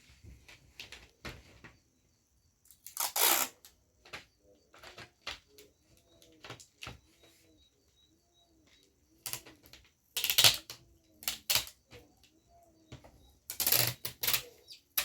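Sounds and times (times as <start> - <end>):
adhesive tape crackling: 2.7 - 3.7, 10.2 - 11.8, 13.5 - 15.0.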